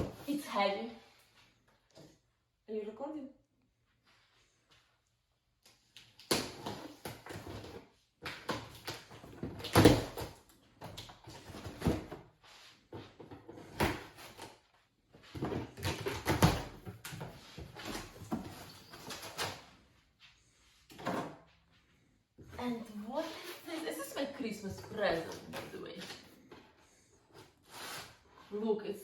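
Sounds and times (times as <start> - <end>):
cardboard box scraping and rustling: 27.4 - 28.3.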